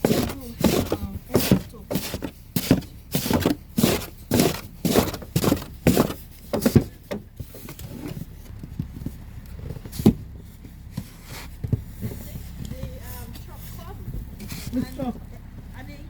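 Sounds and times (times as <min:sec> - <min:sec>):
footsteps crunching through snow: 0:00.0 - 0:06.8.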